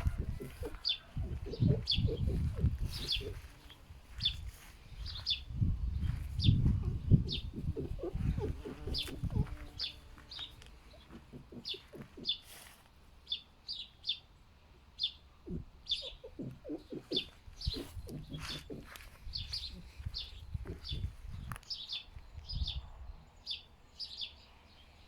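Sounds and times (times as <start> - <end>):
foxes grunting: 0.0 - 3.5, 6.9 - 9.9, 10.9 - 12.7, 15.4 - 21.1
small birds chirping: 0.0 - 14.3, 14.9 - 25.0.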